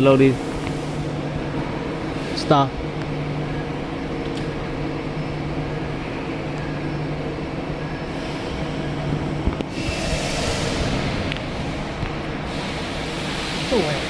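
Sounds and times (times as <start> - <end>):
welding equipment hum: 0.0 - 14.0
hiss: 9.7 - 14.0.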